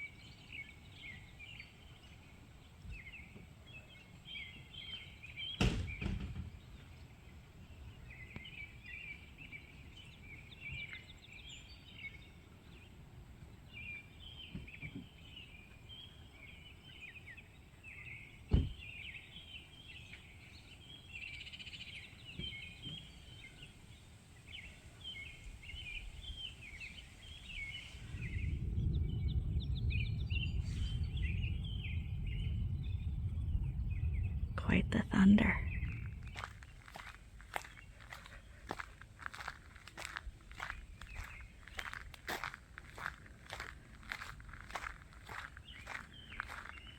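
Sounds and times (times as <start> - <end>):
songbirds singing: 0.0 - 46.9
thunder rumbling: 27.5 - 46.9.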